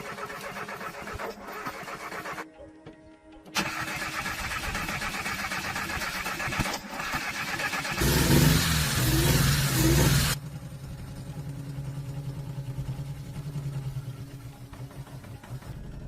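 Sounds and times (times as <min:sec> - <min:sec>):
car engine running and revving: 0:07.8 - 0:16.0.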